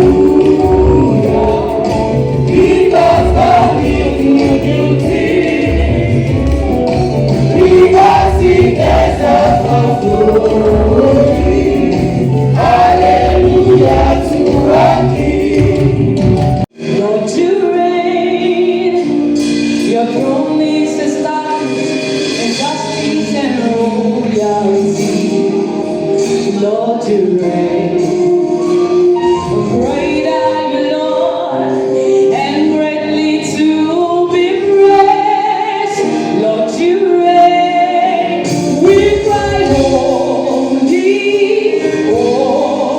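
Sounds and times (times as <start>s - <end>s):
choir singing gospel music: 0.0s - 42.9s.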